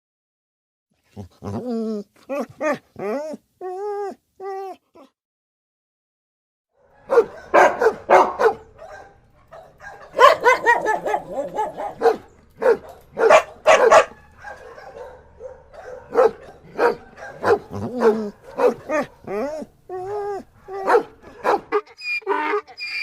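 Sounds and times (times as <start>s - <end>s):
dog barking: 6.8s - 22.7s.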